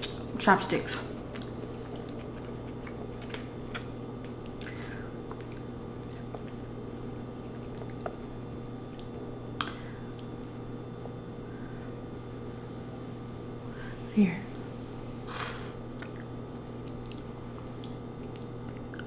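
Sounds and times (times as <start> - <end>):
chewing and wet mouth sounds: 0.0 - 12.4, 15.8 - 19.0
mouth clicks and smacks: 16.0 - 19.0.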